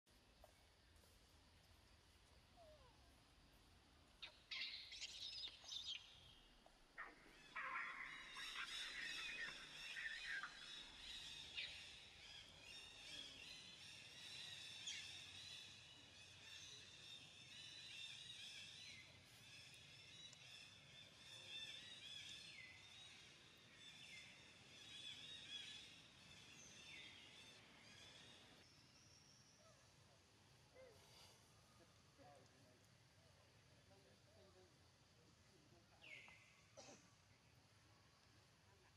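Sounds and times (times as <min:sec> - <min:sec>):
birds chirping: 0:04.1 - 0:30.0.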